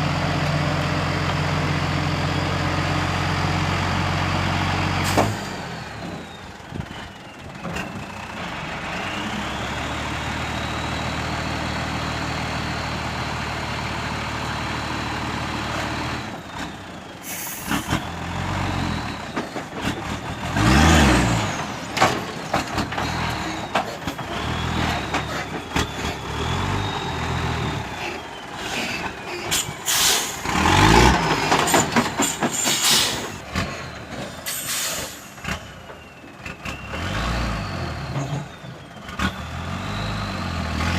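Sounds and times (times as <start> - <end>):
diesel truck engine revving: 0.0 - 40.9
air hiss burst: 29.5 - 30.4, 32.6 - 33.3, 34.5 - 35.3.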